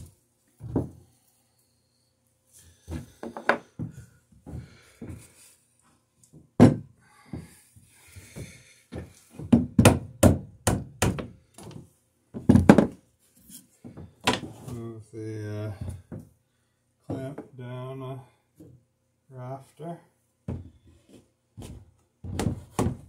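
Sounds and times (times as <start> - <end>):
wooden knocks and thunks: 0.6 - 1.0, 2.9 - 4.7, 6.6 - 7.6, 8.2 - 11.8, 12.4 - 13.0, 20.5 - 20.8, 22.2 - 23.0.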